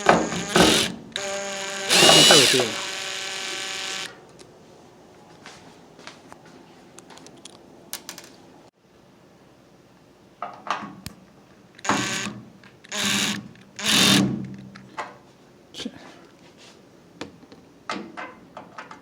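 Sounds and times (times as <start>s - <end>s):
loud rasping metal scrapes: 1.9s - 2.8s.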